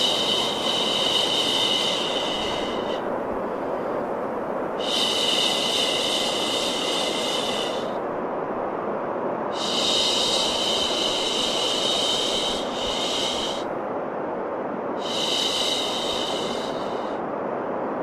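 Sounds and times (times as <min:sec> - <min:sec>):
higher bright hiss: 0:00.0 - 0:03.1, 0:09.5 - 0:13.7
white noise hiss: 0:00.0 - 0:18.0.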